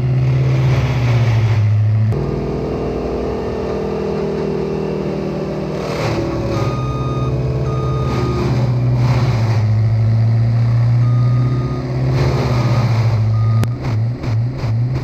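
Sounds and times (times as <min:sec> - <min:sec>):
engine running: 0:00.0 - 0:15.0
truck reversing alarm beeping: 0:05.8 - 0:09.1, 0:09.8 - 0:14.2.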